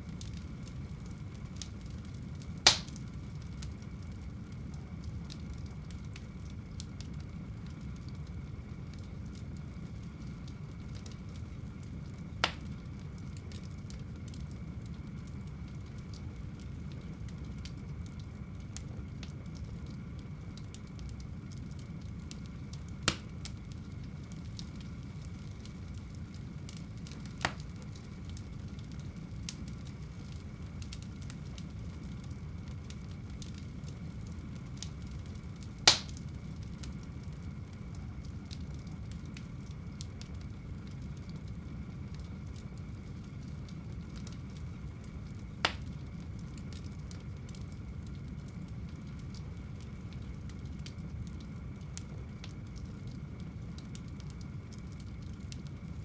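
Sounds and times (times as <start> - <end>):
fire crackling pops: 0.0 - 56.0
fire flames rumbling: 0.0 - 56.0.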